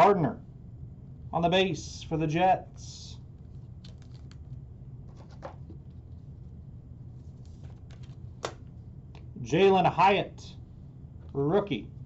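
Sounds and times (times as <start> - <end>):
steady low hum: 0.0 - 12.0
trading cards clicking and rustling: 3.4 - 6.1, 7.3 - 9.3.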